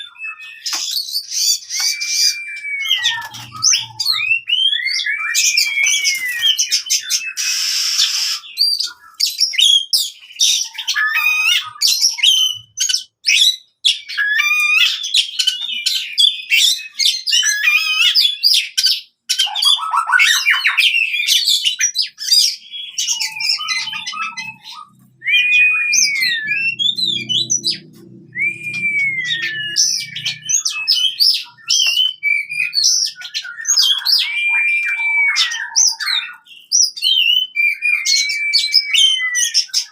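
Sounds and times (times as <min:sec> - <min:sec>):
songbird whistling and chattering: 0:00.0 - 0:39.9.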